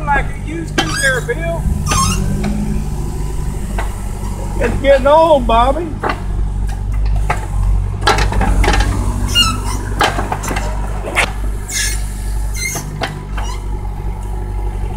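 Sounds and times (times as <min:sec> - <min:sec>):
excavator diesel engine: 0:00.0 - 0:14.9
metallic knocks and clanks: 0:00.7 - 0:04.7, 0:06.0 - 0:11.4.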